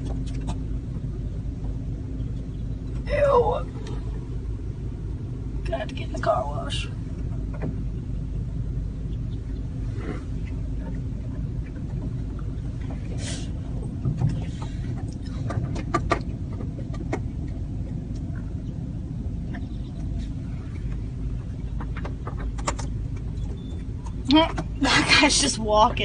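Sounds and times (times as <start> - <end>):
car rumble from inside cabin: 0.0 - 26.0.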